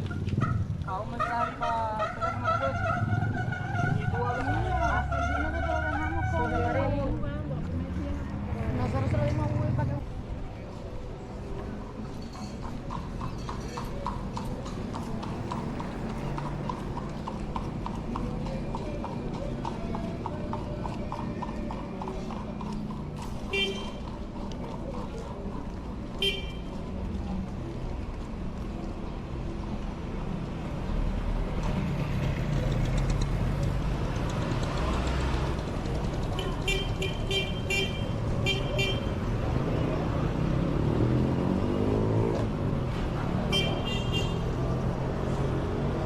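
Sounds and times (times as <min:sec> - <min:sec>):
horse hooves clip-clopping: 0:11.7 - 0:29.0
motor vehicle engine running: 0:11.9 - 0:28.7, 0:30.9 - 0:43.4.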